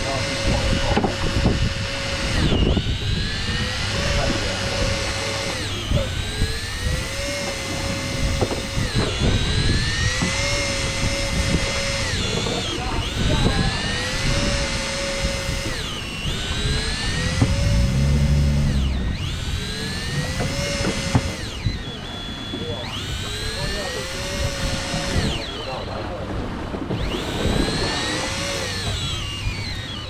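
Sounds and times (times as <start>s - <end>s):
small electric motor whining: 0.0s - 30.0s
low rumble: 15.7s - 22.2s.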